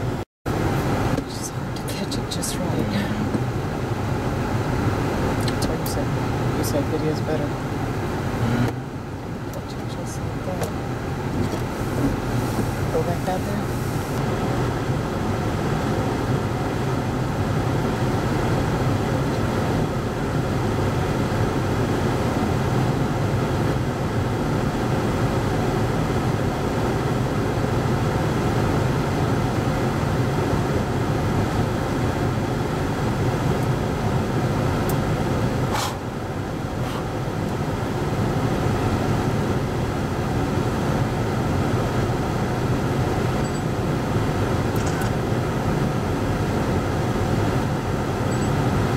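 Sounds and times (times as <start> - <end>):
strong wind roaring around vehicle: 0.0 - 48.9
sharp click: 44.8 - 45.2.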